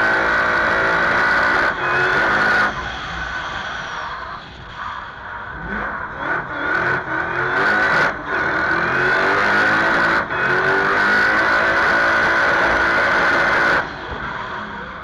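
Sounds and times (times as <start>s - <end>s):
supercharged engine accelerating: 0.0s - 15.0s.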